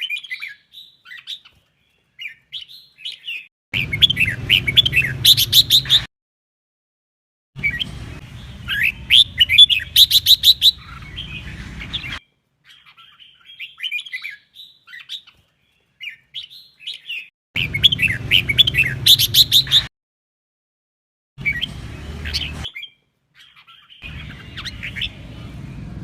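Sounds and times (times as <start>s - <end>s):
bird singing whistled phrases: 2.2s - 6.1s, 8.6s - 15.3s, 16.0s - 19.9s.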